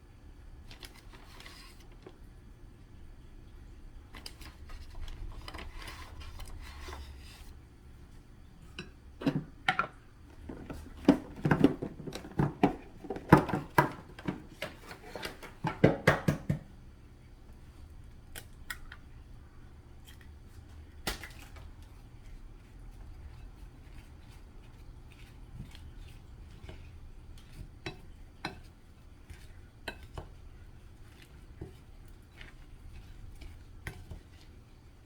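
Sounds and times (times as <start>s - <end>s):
sharp kitchen clicks and knocks: 15.6s - 16.7s.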